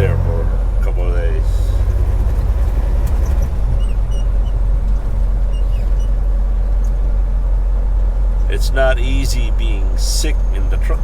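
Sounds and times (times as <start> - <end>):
truck engine rumble: 0.0 - 11.0
faint short high squeaks: 3.1 - 4.6, 5.4 - 6.2.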